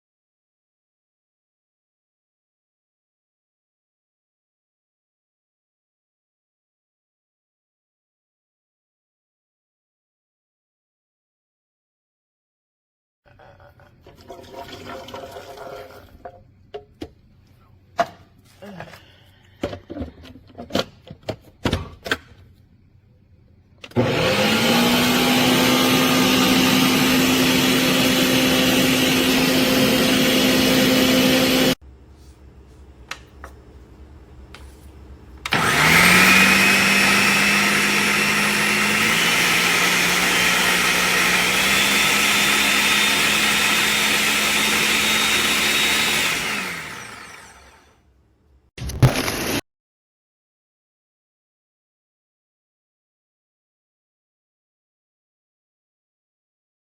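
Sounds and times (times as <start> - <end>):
blender running: 23.9 - 31.8, 35.5 - 48.0, 49.0 - 49.6.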